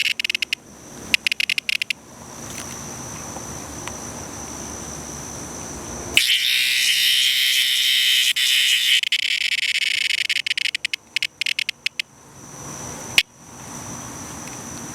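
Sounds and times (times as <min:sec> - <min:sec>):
cicada buzzing distress call: 0:02.8 - 0:14.3.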